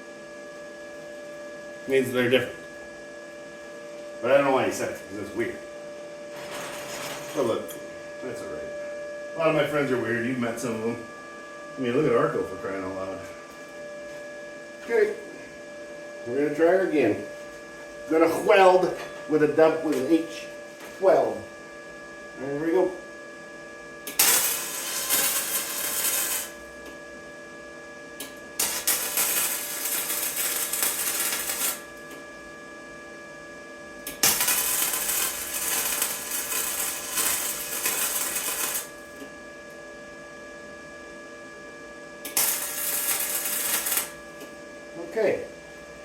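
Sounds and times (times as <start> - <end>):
steady electrical hum: 0.0 - 46.0
electric welding arc crackling: 6.3 - 7.7, 24.1 - 26.7, 28.6 - 32.0, 34.1 - 39.2, 42.3 - 44.2.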